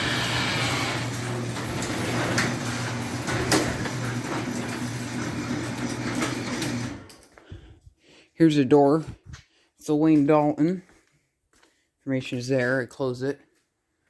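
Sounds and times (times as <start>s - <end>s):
door rattling in tracks: 0.0s - 7.1s
garage door opener motor humming: 0.0s - 7.2s.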